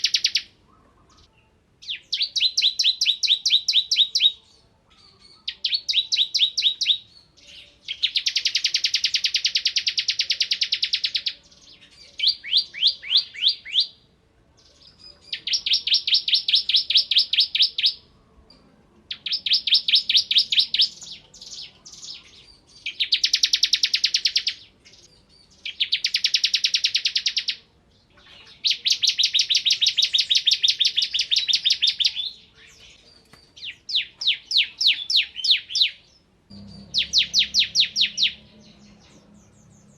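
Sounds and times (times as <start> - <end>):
bird singing rapid high notes: 15.3 - 18.0, 19.1 - 27.7, 28.4 - 39.9.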